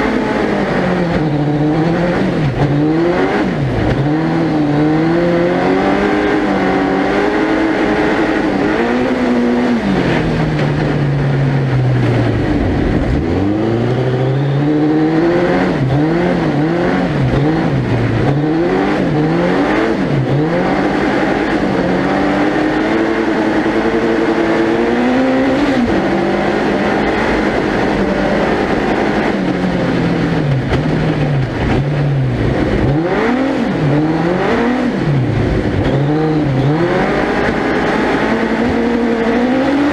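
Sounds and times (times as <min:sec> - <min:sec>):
engine revving: 0:00.0 - 0:39.9
steady rushing noise: 0:00.0 - 0:39.9.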